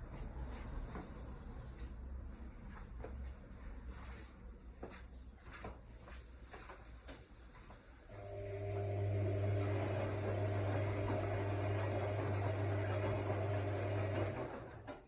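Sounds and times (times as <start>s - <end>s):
washing machine motor humming: 8.1s - 15.0s
water in washing machine: 8.2s - 15.0s.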